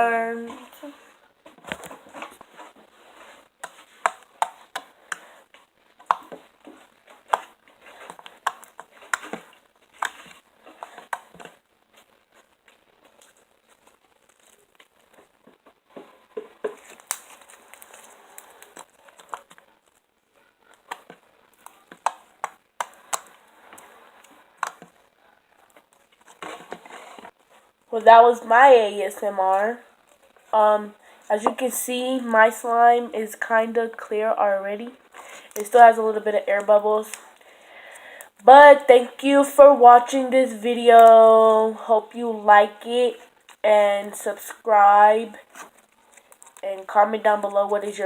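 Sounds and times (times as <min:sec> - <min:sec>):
slime sticky clicks and crackles: 0:16.8 - 0:20.0.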